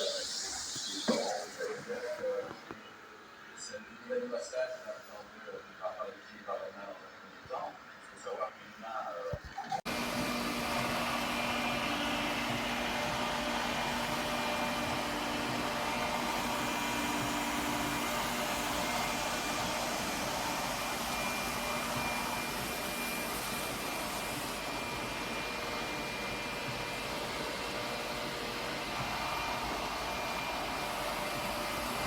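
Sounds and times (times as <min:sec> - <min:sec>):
robot vacuum whirring: 0:00.0 - 0:02.7, 0:09.9 - 0:32.0.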